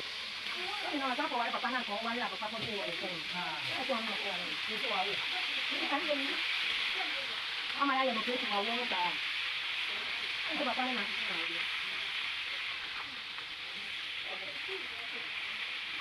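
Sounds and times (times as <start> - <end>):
people talking: 0.0 - 9.2, 9.9 - 12.2, 12.9 - 16.0
food frying in hot oil: 0.0 - 16.0.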